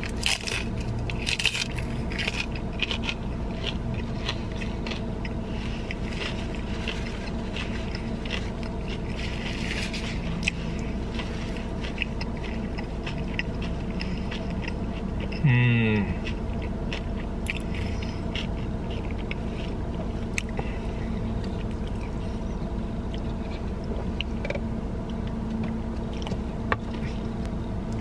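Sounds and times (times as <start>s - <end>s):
low car cabin hum: 0.0s - 28.0s
person chewing food: 0.0s - 28.0s
falling vocal hum: 15.4s - 16.2s.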